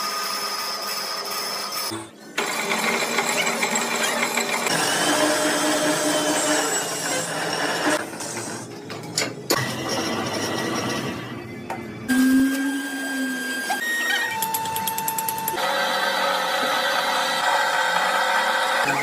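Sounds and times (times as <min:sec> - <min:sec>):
power tool whirring and grinding: 0:00.0 - 0:08.0.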